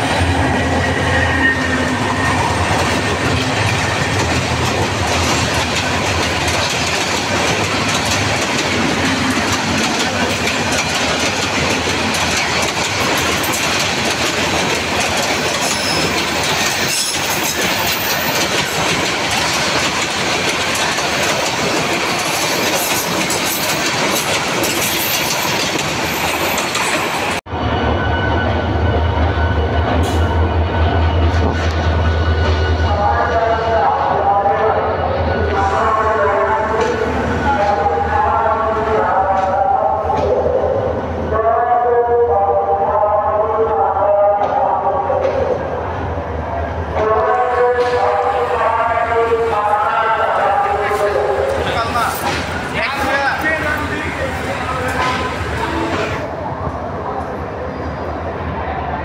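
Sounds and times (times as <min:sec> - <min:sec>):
train passing at speed: 0:00.0 - 0:59.0
wheels clattering over rails: 0:02.7 - 0:27.4.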